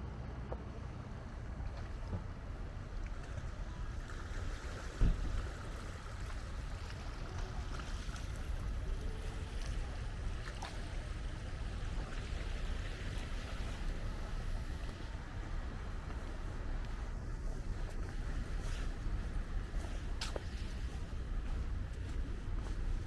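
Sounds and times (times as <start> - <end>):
low outdoor rumble: 0.0 - 23.0
thump: 5.0 - 5.4.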